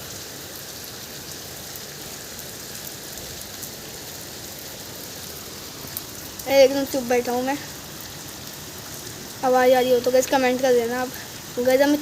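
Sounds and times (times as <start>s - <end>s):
rain falling steadily: 0.0s - 12.0s
rain drop ticks: 5.2s - 12.0s.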